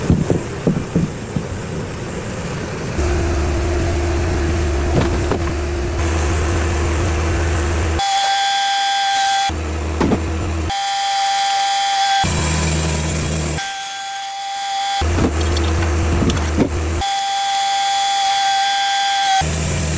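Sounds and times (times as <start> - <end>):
knocks and clatter: 0.0 - 1.8, 4.9 - 5.7, 10.0 - 10.6, 15.0 - 17.0
high steady whine: 0.0 - 8.5
band sawmill humming: 0.0 - 13.6, 14.8 - 19.9.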